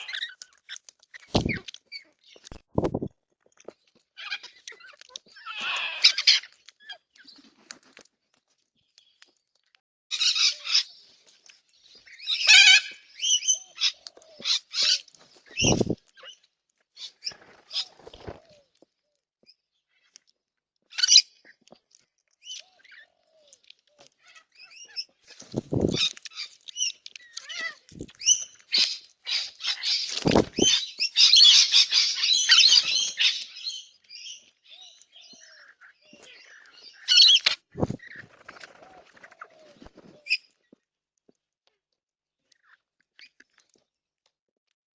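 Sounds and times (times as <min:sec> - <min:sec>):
birds screeching: 0:00.0 - 0:00.5, 0:04.2 - 0:07.4, 0:10.1 - 0:11.1, 0:12.1 - 0:16.4, 0:22.4 - 0:40.4.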